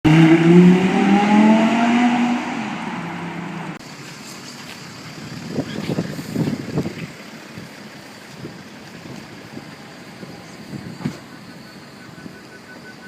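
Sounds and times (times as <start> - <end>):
sports car accelerating hard: 0.1 - 3.8
wind rumbling on microphone: 5.2 - 7.7.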